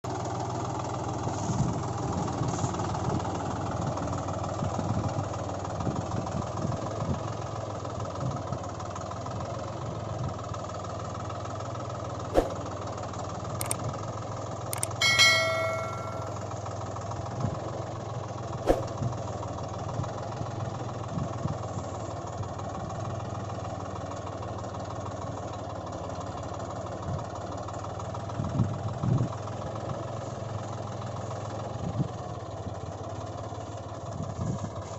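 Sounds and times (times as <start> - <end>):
sharp clicks: 13.6 - 13.8, 14.8 - 16.4
short bell-like ring: 14.8 - 16.5.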